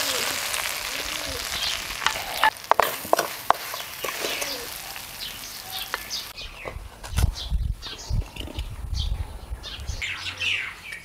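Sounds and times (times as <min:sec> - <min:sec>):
food sizzling in a wok: 0:00.0 - 0:06.4
wooden spatula scraping a pan: 0:02.0 - 0:04.8.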